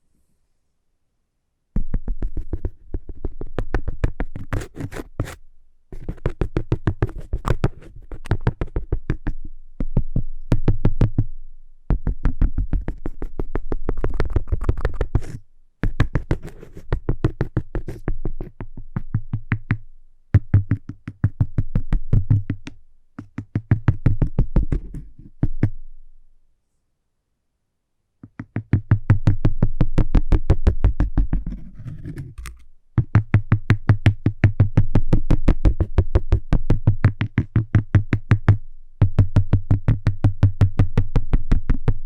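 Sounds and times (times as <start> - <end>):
fingertips tapping on cork: 28.2 - 29.4, 30.7 - 41.1.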